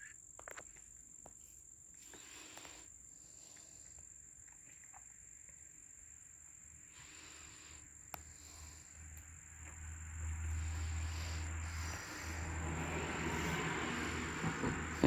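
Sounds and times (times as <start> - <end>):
insects trilling: 0.0 - 15.0
low rumble with hiss: 6.3 - 15.0.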